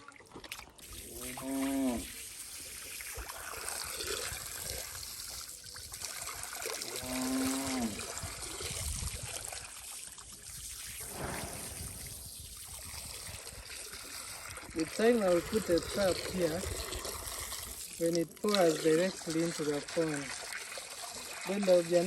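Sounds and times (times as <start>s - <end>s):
water trickling and pouring: 0.0s - 22.0s.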